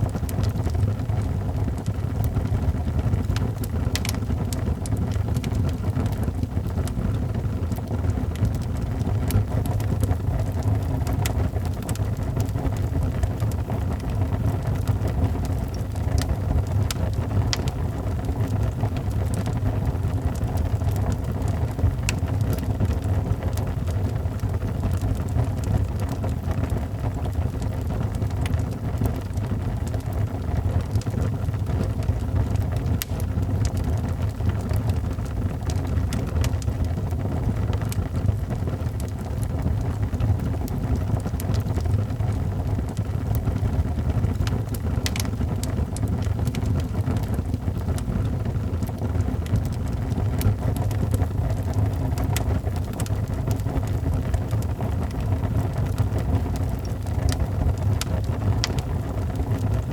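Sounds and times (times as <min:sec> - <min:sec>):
fire crackles and pops: 0:00.0 - 0:59.9
fire low rumble: 0:00.0 - 0:59.9.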